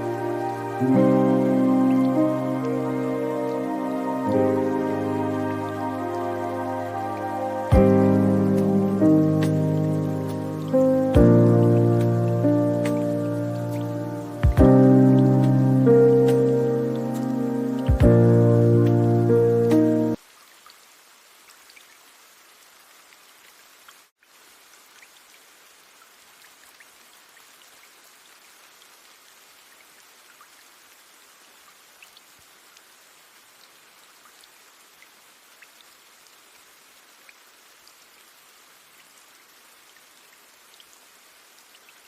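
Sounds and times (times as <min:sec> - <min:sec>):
steady rain hiss: 0:00.0 - 0:42.0
raindrops ticking: 0:07.7 - 0:20.8.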